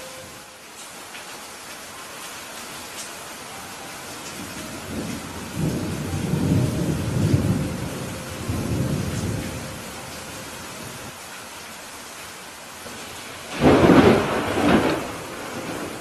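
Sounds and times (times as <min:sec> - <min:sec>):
heavy rain: 0:00.0 - 0:16.0
thunder rumbling: 0:04.2 - 0:11.1, 0:12.9 - 0:16.0.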